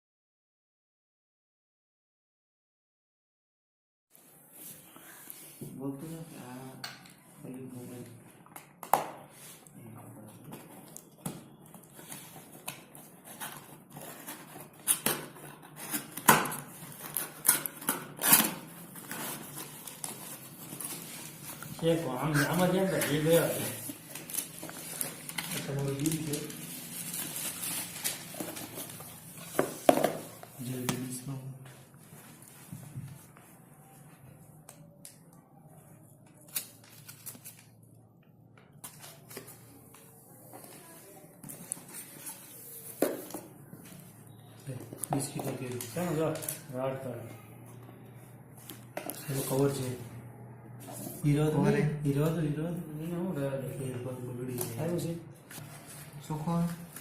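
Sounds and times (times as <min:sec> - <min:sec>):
paper and plastic rustling: 0:07.2 - 0:34.0, 0:36.3 - 0:37.9, 0:38.7 - 0:47.2, 0:48.6 - 0:50.0, 0:54.5 - 0:57.0
packaging rustling: 0:10.5 - 0:30.7.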